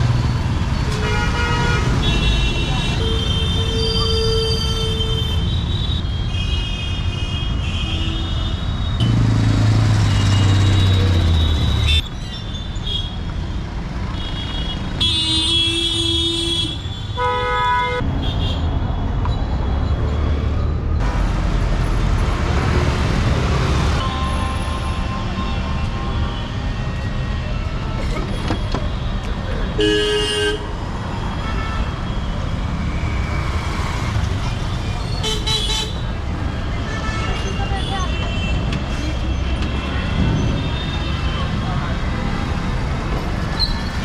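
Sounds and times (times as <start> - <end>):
vehicle horns honking: 14.2 - 18.6, 29.8 - 30.7.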